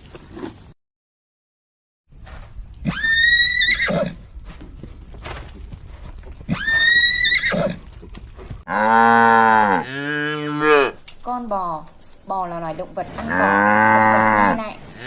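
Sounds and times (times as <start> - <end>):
horse whinnying: 2.8 - 4.3, 6.4 - 11.0
cow mooing: 8.7 - 11.0, 13.2 - 15.0.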